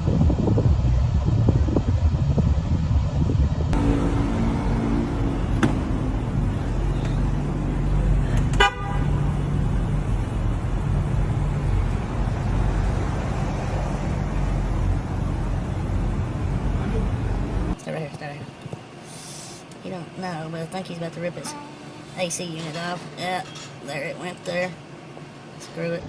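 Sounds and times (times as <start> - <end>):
engine running: 0.0 - 19.0
road noise: 0.0 - 26.0
vehicle horn honking: 3.8 - 6.4, 8.5 - 9.5.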